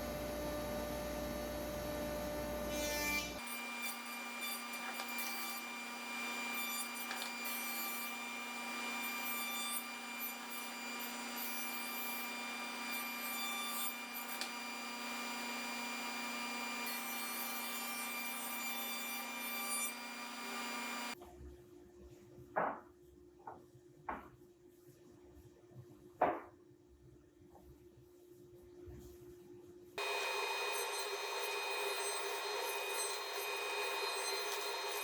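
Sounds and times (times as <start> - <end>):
power tool humming: 0.3 - 21.2, 30.0 - 35.0.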